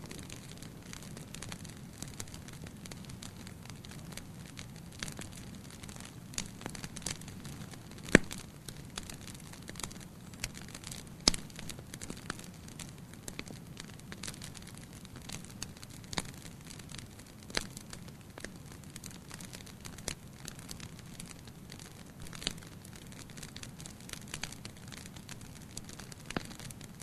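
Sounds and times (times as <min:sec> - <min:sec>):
low rumble of flames: 0:00.0 - 0:27.0
wood fire crackling and popping: 0:00.0 - 0:27.0.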